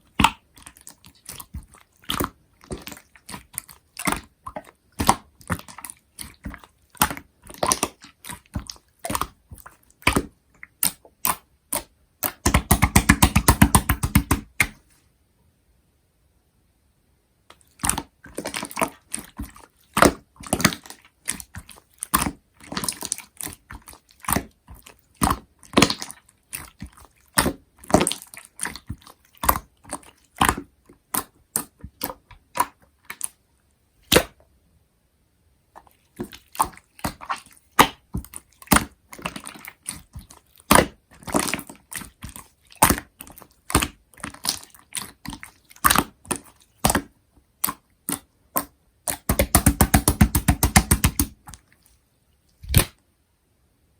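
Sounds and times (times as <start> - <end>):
slime squeezed by hand: 17.7 - 33.3, 34.0 - 34.4, 35.8 - 51.7, 52.6 - 53.0.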